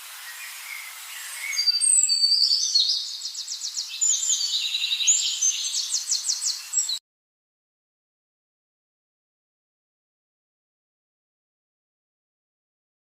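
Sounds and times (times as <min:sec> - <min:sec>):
steady high hiss: 0:00.0 - 0:07.0
birds singing and chirping: 0:00.1 - 0:07.0.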